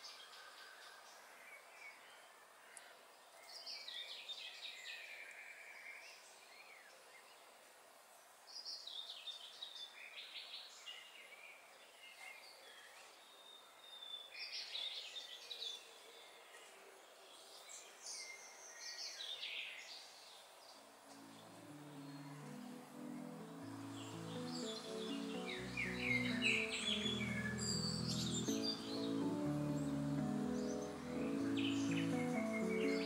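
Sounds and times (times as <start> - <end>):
background hiss: 0.0 - 33.0
songbird chirping: 0.0 - 33.0.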